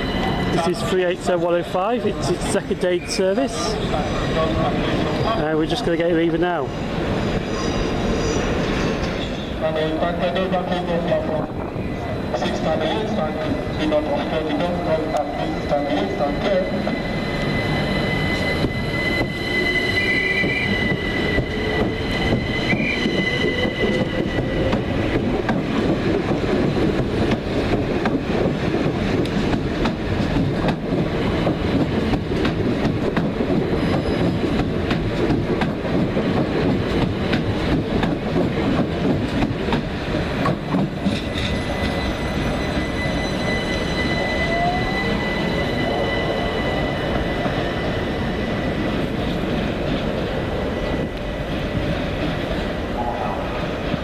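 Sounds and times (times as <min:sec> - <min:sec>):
train rumbling on rails: 0:00.0 - 0:54.0
high-pitched wheel squeal: 0:15.0 - 0:25.0, 0:33.8 - 0:34.5, 0:41.2 - 0:48.9.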